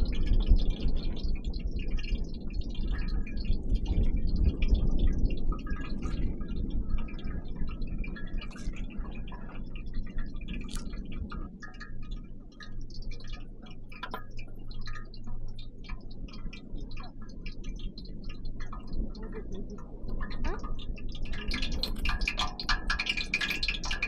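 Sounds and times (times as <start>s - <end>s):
low steady rumble: 0.0s - 24.0s
small clicks and ticks: 0.0s - 24.0s.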